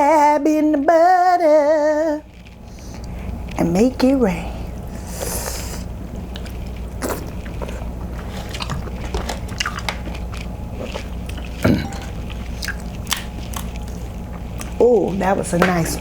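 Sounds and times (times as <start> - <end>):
wet chewing and smacking: 5.4 - 15.3.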